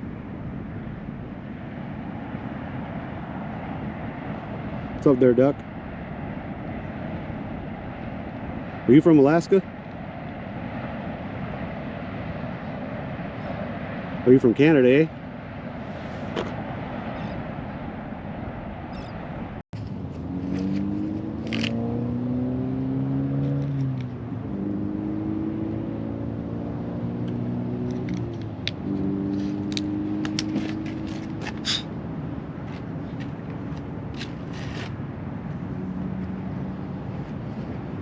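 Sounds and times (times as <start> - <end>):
vehicle engine accelerating: 19.8 - 31.9
clicks and scrapes of gear: 20.5 - 21.8, 29.3 - 31.9, 32.7 - 35.0.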